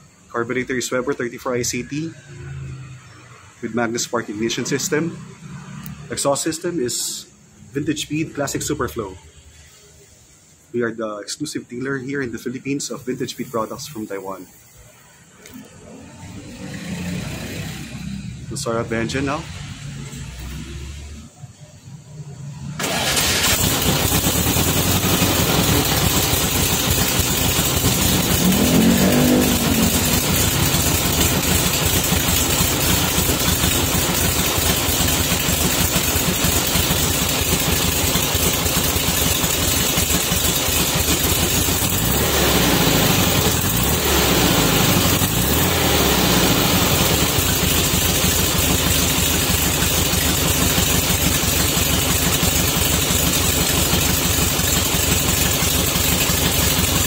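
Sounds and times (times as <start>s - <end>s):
car engine idling and revving: 4.3s - 6.3s, 14.8s - 57.0s.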